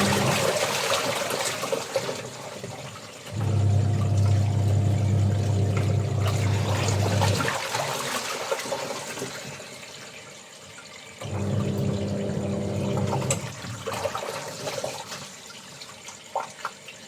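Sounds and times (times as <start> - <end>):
water sloshing: 0.0 - 2.2, 3.4 - 9.1
electric motor humming: 3.4 - 7.4.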